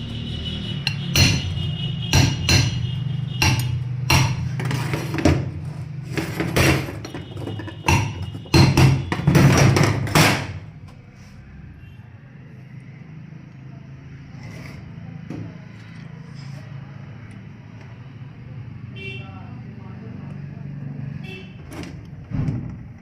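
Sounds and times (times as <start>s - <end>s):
hammer blows: 0.4s - 4.9s, 6.4s - 10.6s.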